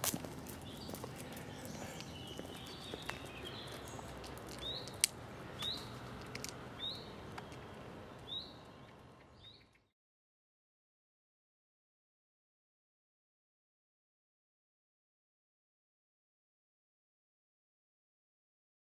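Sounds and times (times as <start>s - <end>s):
bird singing: 0.6s - 6.1s, 6.8s - 9.9s.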